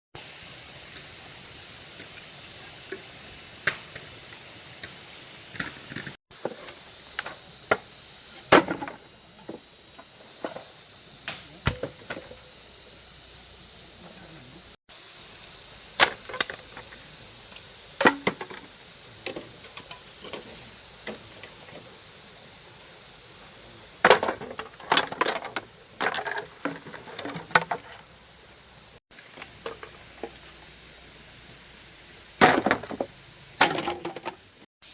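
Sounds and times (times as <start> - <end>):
high-pitched insect chorus: 0.2 - 34.9
wooden knocks and clatters: 24.0 - 28.0.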